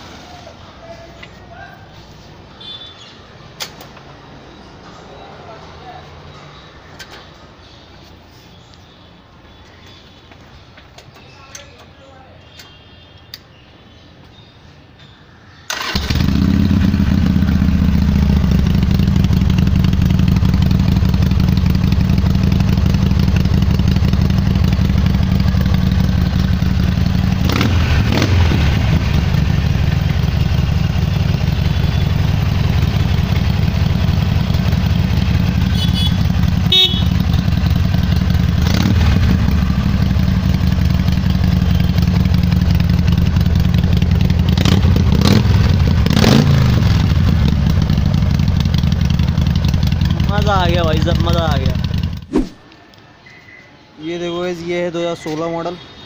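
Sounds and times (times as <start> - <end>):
motorcycle engine starting and idling: 15.6 - 52.3.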